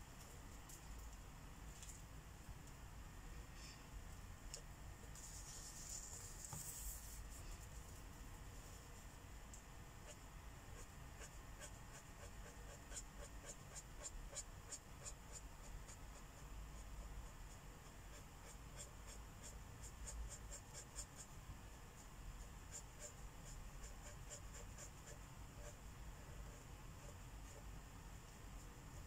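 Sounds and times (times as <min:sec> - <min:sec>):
marker scratching on paper: 0:10.8 - 0:21.4, 0:22.7 - 0:27.7.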